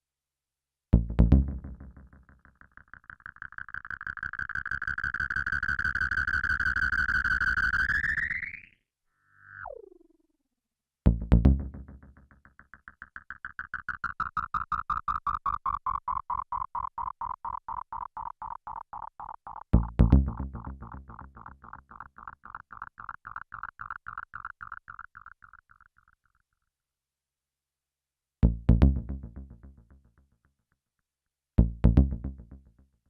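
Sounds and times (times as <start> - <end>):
synth bass notes with delay echoes: 11.1 - 15.2, 17.0 - 26.1, 28.4 - 30.2.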